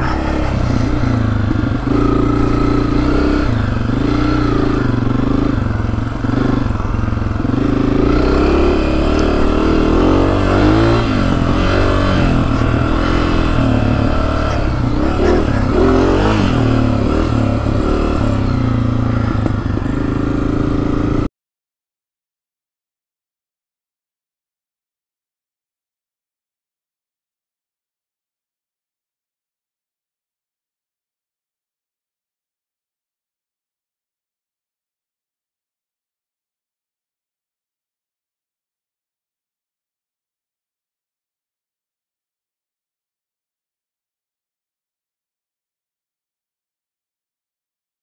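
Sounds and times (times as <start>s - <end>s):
dirt bike engine revving: 0.0s - 21.3s.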